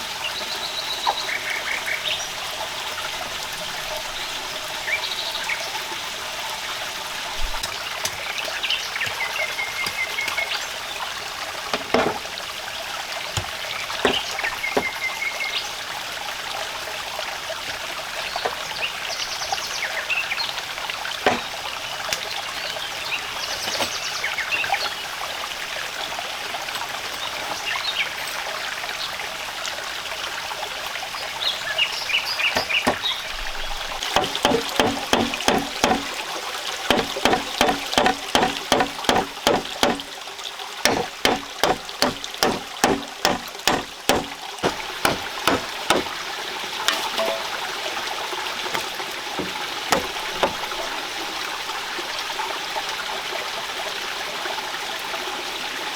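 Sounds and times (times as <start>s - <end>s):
running water: 0.0s - 55.9s
fast sharp knocks: 13.4s - 15.0s, 21.3s - 21.5s, 32.6s - 33.1s, 34.0s - 36.3s, 36.9s - 40.2s, 40.9s - 46.2s, 48.8s - 50.9s.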